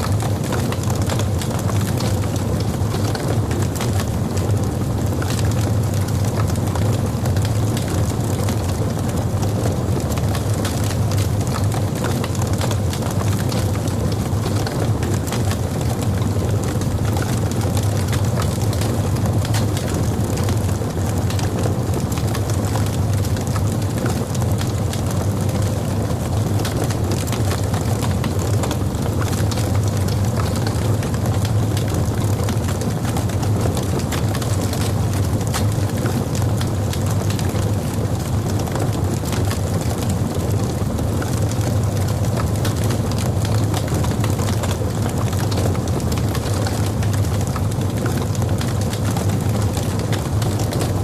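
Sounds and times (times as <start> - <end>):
low rumble of fire: 0.0 - 51.0
wood fire crackling and popping: 0.0 - 51.0.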